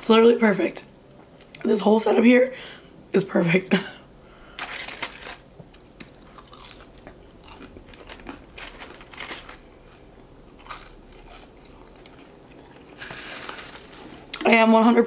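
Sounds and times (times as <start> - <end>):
crunchy chewing of fries: 4.7 - 14.5.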